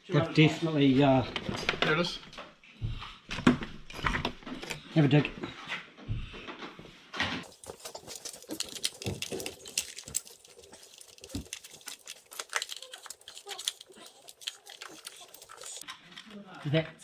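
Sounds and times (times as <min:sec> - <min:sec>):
hand tools scraping: 0:07.4 - 0:15.9.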